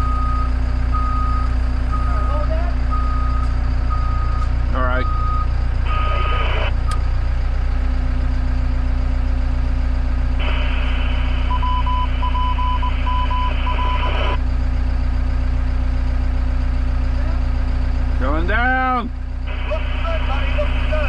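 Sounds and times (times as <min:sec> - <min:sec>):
warning alarm short beeps: 0:00.0 - 0:06.4, 0:10.8 - 0:14.4
steady motor tone: 0:00.0 - 0:07.1, 0:10.3 - 0:14.4, 0:18.2 - 0:21.0
heavy machinery low hum: 0:00.0 - 0:21.0.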